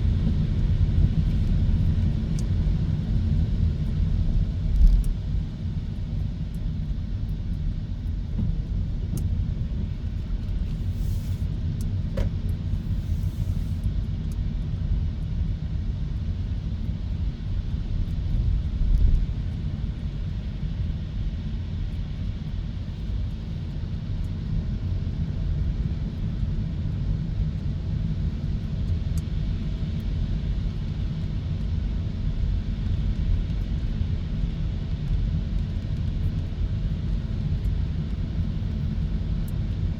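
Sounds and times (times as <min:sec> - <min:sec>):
road and tyre noise: 0:12.1 - 0:13.8.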